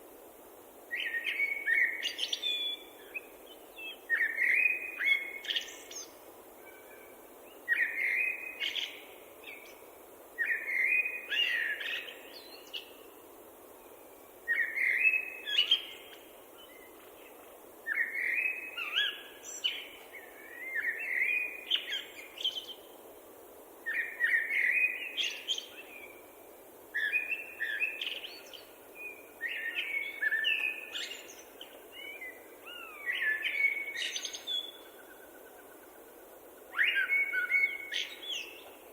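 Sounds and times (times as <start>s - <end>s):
faint background hiss: 0.0s - 38.9s
songbird chirping: 27.0s - 38.9s.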